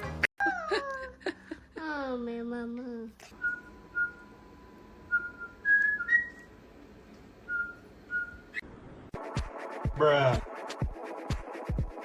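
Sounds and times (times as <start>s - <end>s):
whistling short notes: 3.4s - 4.3s, 5.1s - 6.5s, 7.5s - 8.6s.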